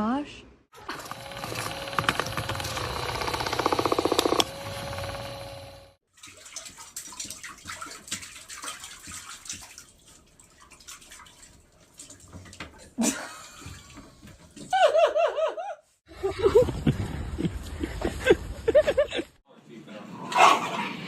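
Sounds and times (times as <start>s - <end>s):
water splashing in a bathtub: 6.0s - 14.8s.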